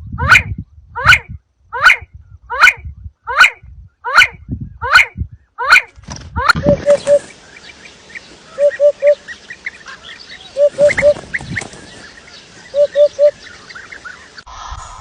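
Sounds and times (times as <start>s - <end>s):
small birds chirping: 3.9s - 14.5s
bird calling short low notes: 12.4s - 14.3s.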